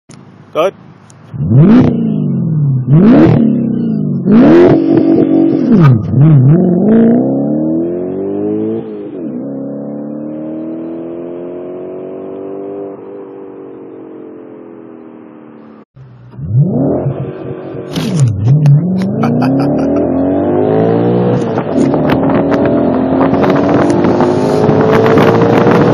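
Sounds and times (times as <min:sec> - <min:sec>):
car engine revving and accelerating: 0:01.3 - 0:15.4, 0:16.2 - 0:25.9.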